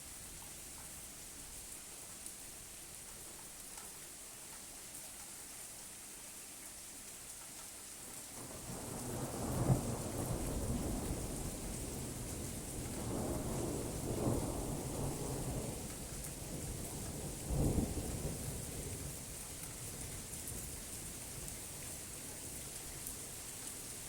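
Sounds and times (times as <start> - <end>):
steady rain falling: 0.0 - 24.0
thunder rumbling: 12.9 - 15.8.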